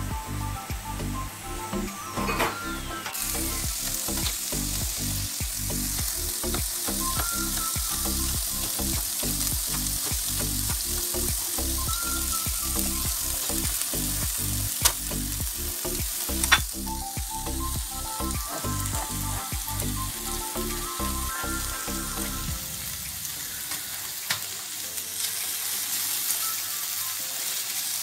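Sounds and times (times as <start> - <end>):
low rhythmic beat: 0.0 - 2.2, 3.2 - 23.0
peppers sizzling in a pan: 0.0 - 28.0.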